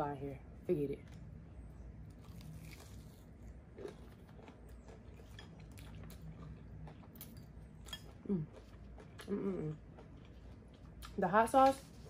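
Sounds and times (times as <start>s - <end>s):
low steady hum: 0.0s - 12.0s
chewing crispy fried fish: 2.1s - 11.2s.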